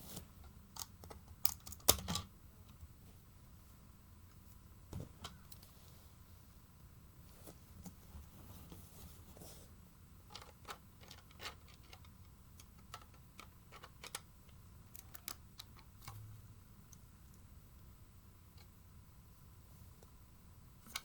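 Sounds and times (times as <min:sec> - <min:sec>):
faint low room hum: 0:00.0 - 0:21.0
plastic pieces clicking: 0:00.8 - 0:02.2, 0:10.3 - 0:14.3.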